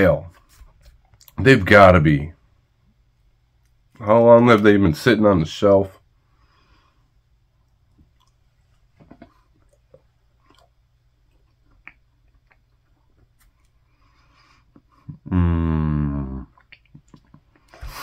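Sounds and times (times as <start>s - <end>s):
chewing crunches: 7.9s - 13.8s, 16.5s - 17.8s.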